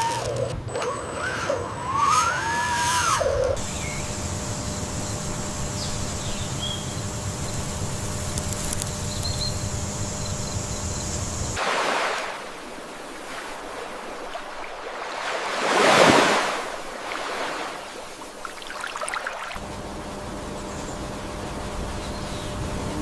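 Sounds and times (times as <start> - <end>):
low mechanical hum: 0.0 - 11.6, 16.4 - 23.0
faint high whine: 0.0 - 14.9
surf washing onto beach: 11.6 - 19.6.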